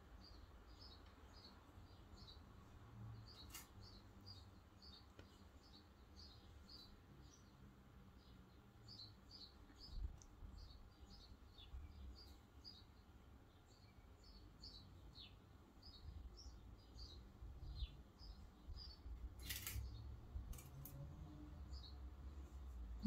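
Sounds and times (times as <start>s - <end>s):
brief rustle: 3.4s - 3.8s, 19.4s - 19.9s.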